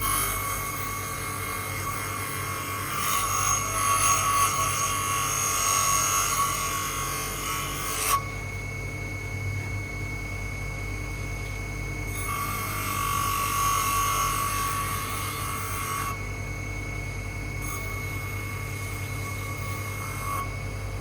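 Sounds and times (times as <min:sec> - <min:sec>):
tool rasping on knife: 0:00.0 - 0:08.2.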